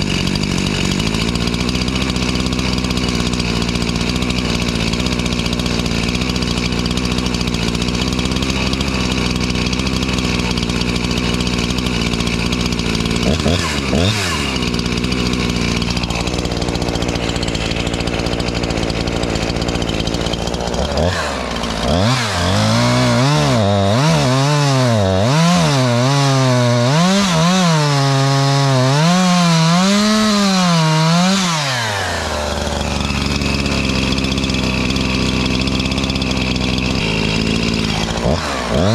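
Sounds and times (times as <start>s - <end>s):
chainsaw engine idling and revving: 0.0s - 38.9s.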